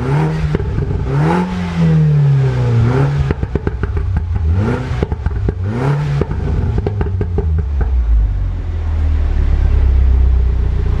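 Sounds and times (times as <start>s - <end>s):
exhaust popping and crackling: 0.0s - 8.4s
car engine revving and idling: 0.0s - 11.0s.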